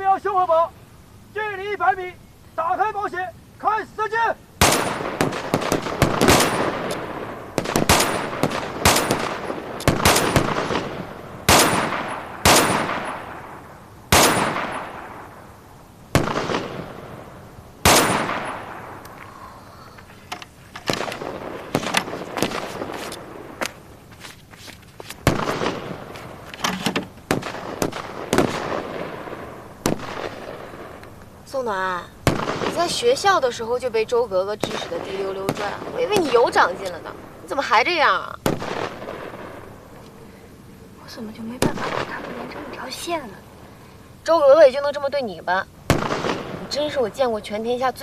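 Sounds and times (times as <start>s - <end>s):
rifle shots echoing: 4.6s - 15.5s, 16.1s - 19.1s, 20.8s - 23.9s, 25.2s - 31.1s, 32.2s - 33.6s, 34.6s - 40.0s, 41.6s - 43.0s, 45.8s - 47.3s.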